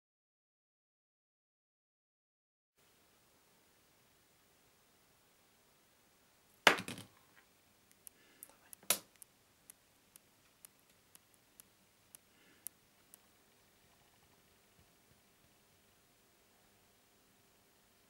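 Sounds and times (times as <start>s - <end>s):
sharp clicks: 7.9s - 13.2s.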